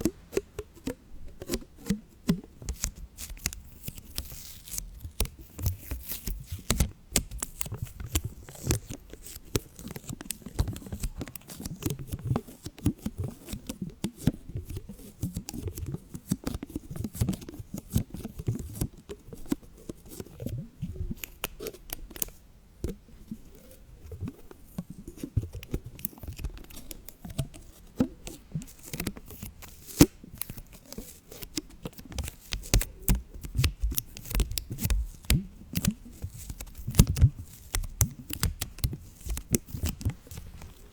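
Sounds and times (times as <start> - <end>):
crackling and clicking: 23.6 - 40.9.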